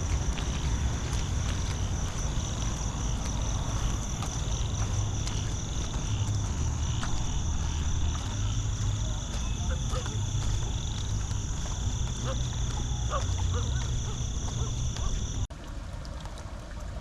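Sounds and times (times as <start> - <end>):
crickets chirping chorus: 0.0 - 15.5.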